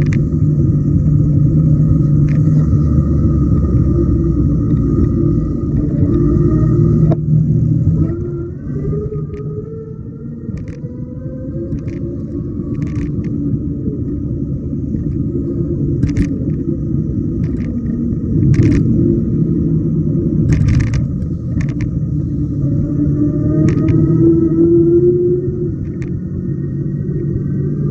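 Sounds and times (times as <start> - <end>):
road noise: 0.0 - 27.9
wind rumble on microphone: 0.0 - 27.9
clicks and knocks from bumps: 17.4 - 18.8, 20.5 - 22.0.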